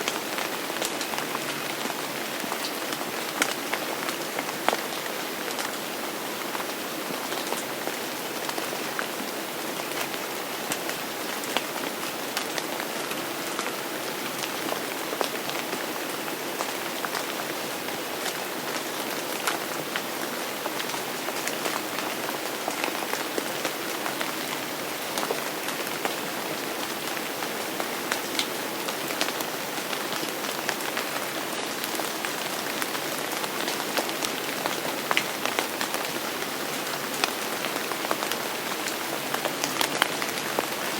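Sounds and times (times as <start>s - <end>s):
raindrops ticking and pattering: 0.0s - 40.9s
steady rain hiss: 0.0s - 40.9s.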